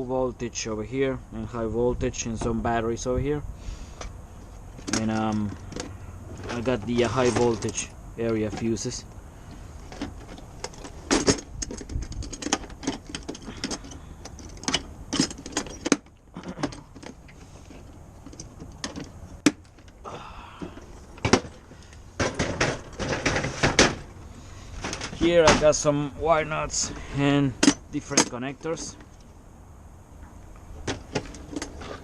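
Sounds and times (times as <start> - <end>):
small parts rattling: 4.7 - 20.0, 20.6 - 25.8
plastic boxes clicking and knocking: 20.6 - 21.6, 22.2 - 24.1.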